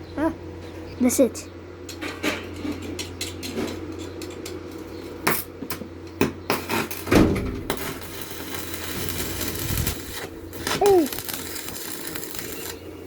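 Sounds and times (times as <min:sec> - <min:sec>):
steady low hum: 0:06.9 - 0:13.0.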